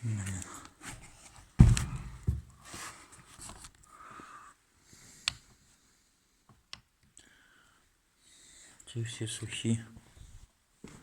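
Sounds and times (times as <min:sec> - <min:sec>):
dull knock: 0:01.6 - 0:02.5.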